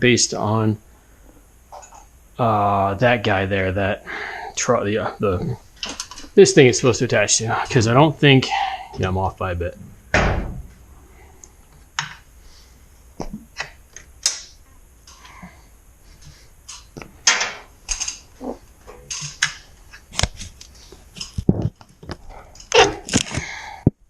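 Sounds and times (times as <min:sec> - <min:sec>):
sharp knocks: 0:10.1 - 0:10.8
metal hardware clicking and clanking: 0:16.7 - 0:18.2.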